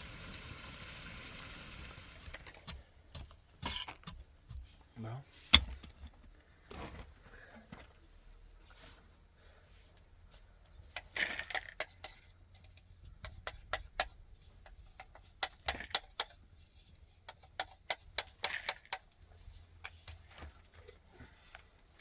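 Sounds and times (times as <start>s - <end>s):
hard objects clicking and knocking: 2.3s - 4.6s, 10.9s - 16.6s, 17.2s - 19.2s.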